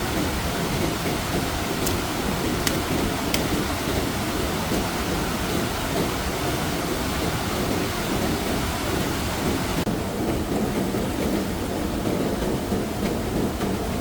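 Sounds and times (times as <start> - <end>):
rushing water: 0.0 - 9.9.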